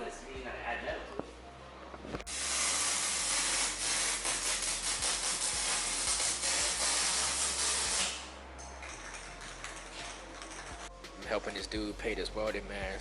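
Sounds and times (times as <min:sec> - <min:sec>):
aerosol spray can hissing: 0:02.3 - 0:08.3.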